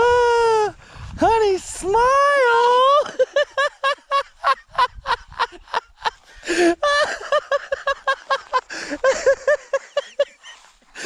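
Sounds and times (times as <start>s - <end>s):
person laughing hard: 2.8s - 11.0s
gasping breath: 6.2s - 6.8s, 8.7s - 9.0s, 10.6s - 11.0s.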